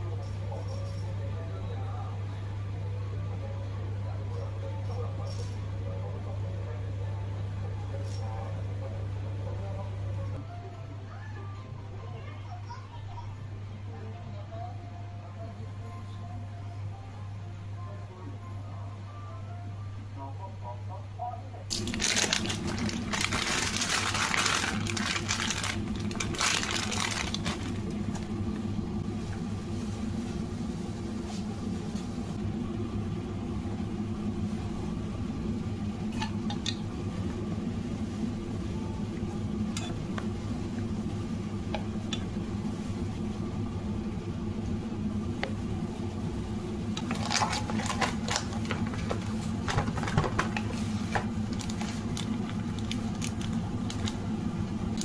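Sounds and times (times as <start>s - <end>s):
machine hum: 13.4s - 55.0s.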